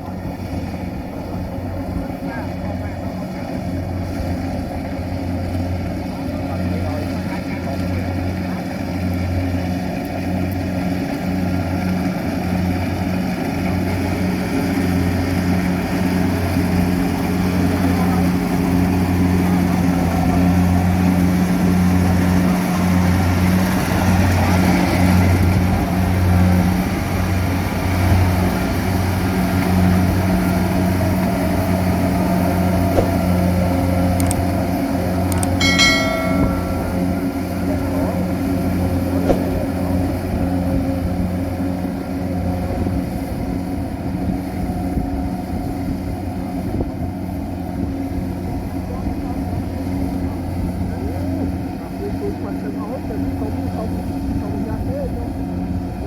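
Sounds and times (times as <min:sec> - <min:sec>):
harvester engine running: 0:20.1 - 0:42.2.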